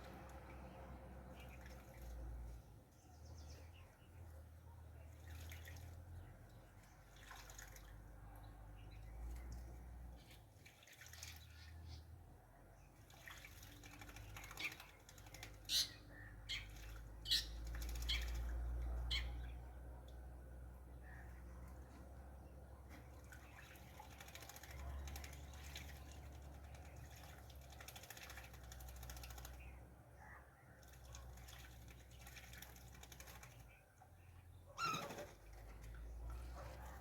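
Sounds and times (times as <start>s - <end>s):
birds splashing in water: 0.0s - 37.0s
bird chirps: 14.1s - 18.5s, 34.7s - 35.2s.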